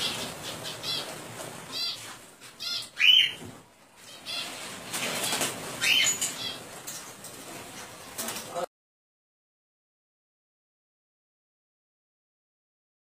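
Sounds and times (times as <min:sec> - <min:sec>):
birds fluttering wings: 0:00.0 - 0:08.7.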